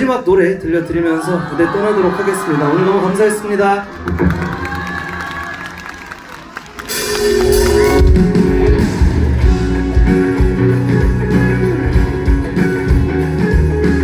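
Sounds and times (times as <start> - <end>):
live band playing: 6.6 - 14.0.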